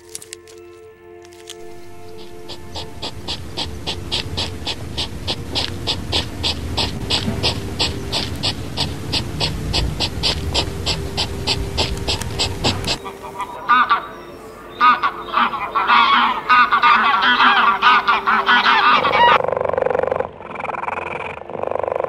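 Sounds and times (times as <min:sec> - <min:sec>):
low rumble: 0:01.6 - 0:13.0
animal panting: 0:01.6 - 0:14.0.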